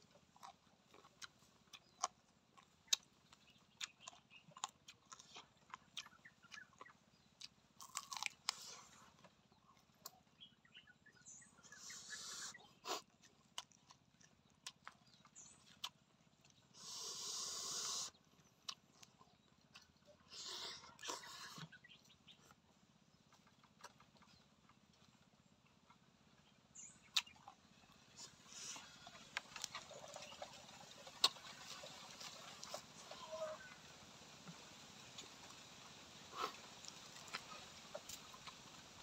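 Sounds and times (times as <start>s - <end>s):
crunching chewing clicks: 0.0s - 39.0s
breathy hisses: 16.8s - 18.1s.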